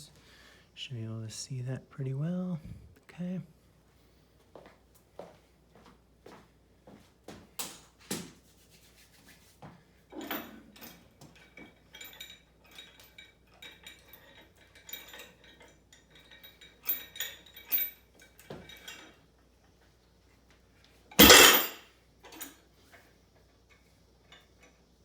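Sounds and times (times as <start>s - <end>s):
loud metal clanks: 21.2s - 21.8s
metal weight plates clinking: 21.2s - 21.8s.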